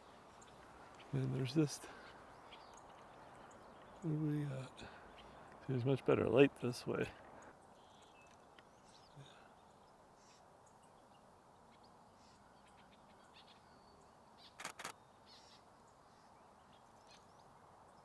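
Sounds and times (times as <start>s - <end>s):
low outdoor hiss: 0.0s - 18.0s
camera shutter firing: 14.6s - 15.0s.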